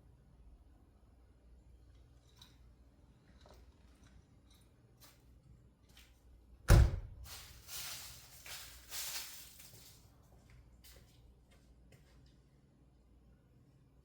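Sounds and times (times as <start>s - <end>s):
loud thump: 6.7s - 7.2s.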